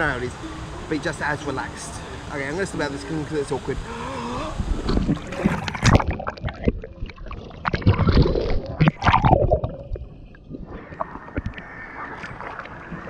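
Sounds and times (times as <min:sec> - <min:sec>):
water sloshing and splashing: 0:04.6 - 0:13.0.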